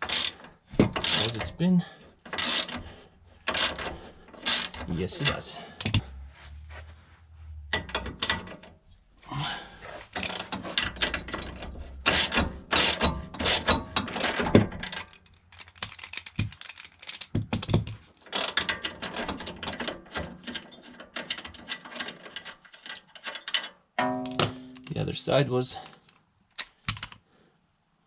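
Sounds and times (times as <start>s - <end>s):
ratchet wrench clicking: 2.3s - 2.8s, 4.4s - 4.8s.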